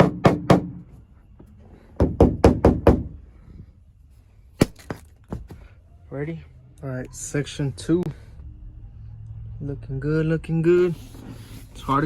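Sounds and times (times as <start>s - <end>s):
knocks on sheet-metal roof: 0.0s - 0.8s, 2.0s - 3.2s.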